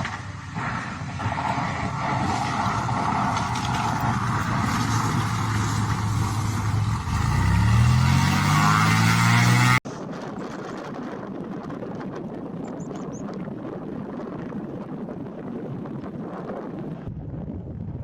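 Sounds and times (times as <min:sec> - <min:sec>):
aircraft engine rising pitch: 0:00.0 - 0:09.8
steady rushing noise: 0:00.0 - 0:18.0.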